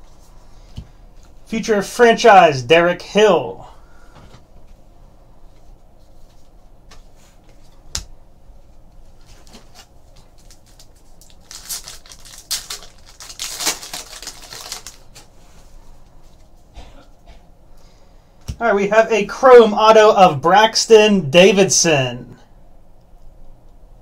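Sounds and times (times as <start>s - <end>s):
wrappers crinkling and tearing: 9.3s - 15.4s.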